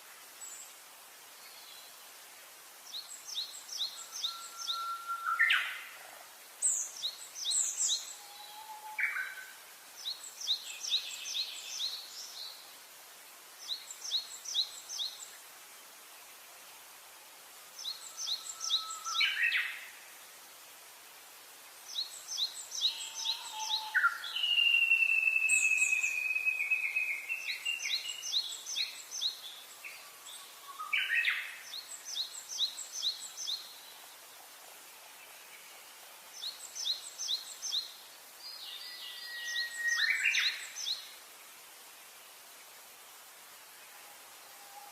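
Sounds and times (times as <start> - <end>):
rising whistled bird calls: 3.8 - 5.9, 17.9 - 19.8, 22.7 - 31.4, 38.6 - 41.0
long falling bird whistle: 4.0 - 5.7, 23.0 - 27.9, 38.8 - 40.6.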